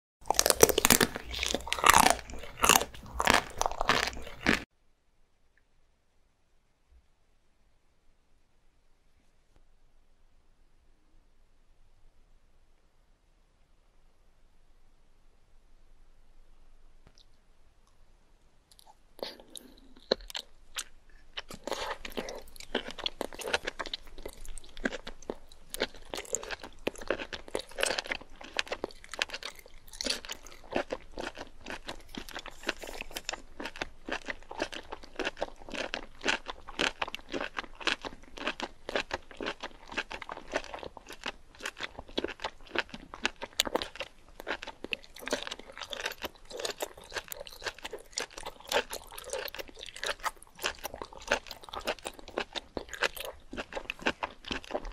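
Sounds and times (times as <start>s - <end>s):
crunchy chewing: 0.2s - 4.7s, 18.7s - 54.9s.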